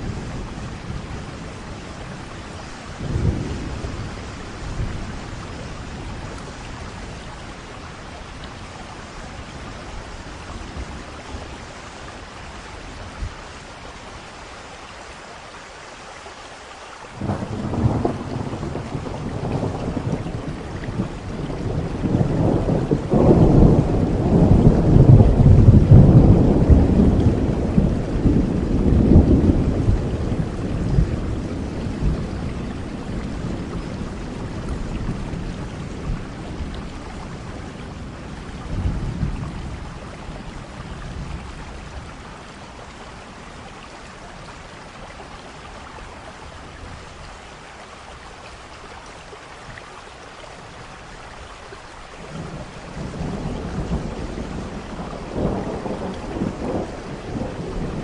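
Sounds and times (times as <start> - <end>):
rolling thunder: 0.0 - 7.2, 17.2 - 42.2, 52.2 - 58.0
steady rain: 0.0 - 58.0.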